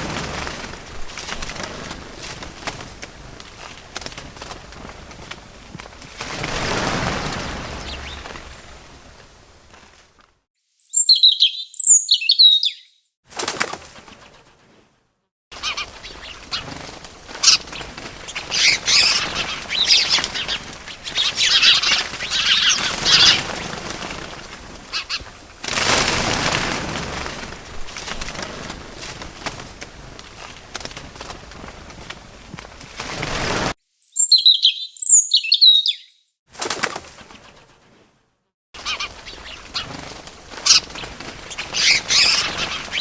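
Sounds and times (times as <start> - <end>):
wing flaps: 0.0 - 10.4, 13.3 - 14.9, 15.6 - 33.8, 36.5 - 38.2, 38.8 - 43.0
rushing noise: 6.2 - 9.8
bird chirping: 7.6 - 8.8, 10.6 - 13.1, 33.9 - 36.3.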